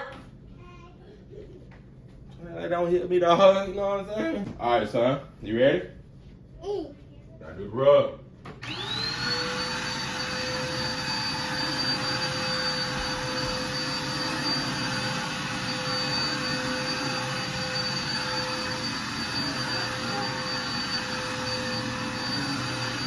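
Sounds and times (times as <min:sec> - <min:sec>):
vacuum cleaner running: 0:08.4 - 0:23.0.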